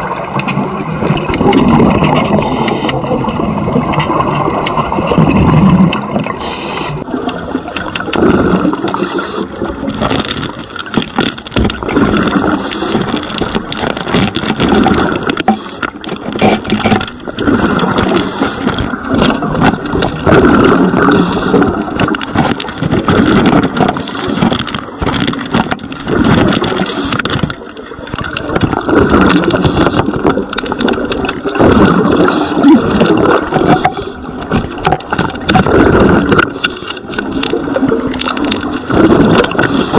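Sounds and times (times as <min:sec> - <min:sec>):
bubbling exhaled air: 0:00.0 - 0:10.3, 0:11.8 - 0:39.9
regulator hiss on inhale: 0:06.4 - 0:07.0, 0:08.9 - 0:09.5, 0:12.6 - 0:13.1, 0:18.1 - 0:18.7, 0:21.2 - 0:21.6, 0:29.6 - 0:30.1, 0:36.5 - 0:37.1.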